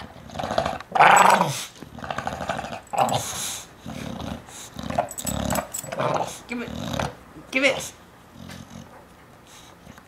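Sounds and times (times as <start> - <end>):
dog growling: 0.0 - 7.2.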